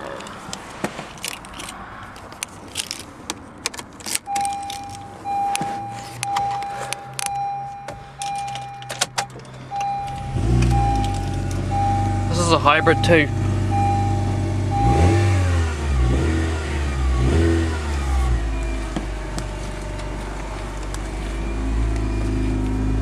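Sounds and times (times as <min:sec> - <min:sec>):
keys jangling in ignition: 0:00.0 - 0:15.3, 0:15.9 - 0:23.0
car engine starting and running: 0:00.0 - 0:23.0
dashboard warning chime beeping: 0:02.4 - 0:23.0.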